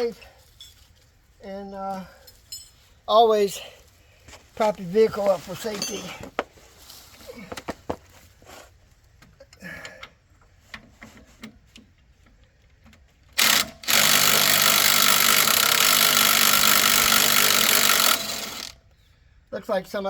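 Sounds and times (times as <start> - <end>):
impact wrench running: 13.4 - 18.8.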